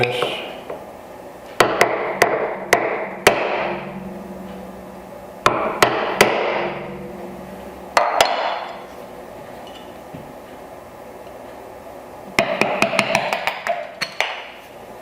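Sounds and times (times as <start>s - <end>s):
mallet striking chisel: 1.6s - 3.6s.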